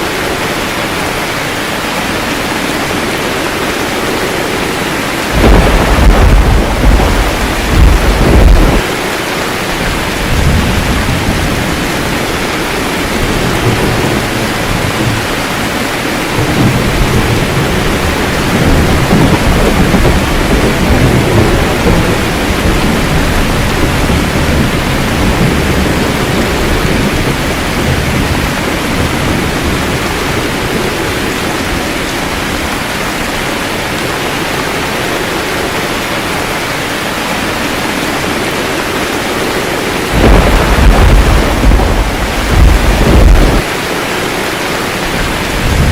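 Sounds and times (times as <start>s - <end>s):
steady rain hiss: 0.0s - 45.9s
thunder rumbling: 1.9s - 36.4s, 37.9s - 45.9s
loud thunderclap: 5.3s - 9.1s, 9.8s - 31.2s, 40.0s - 43.8s, 45.1s - 45.9s.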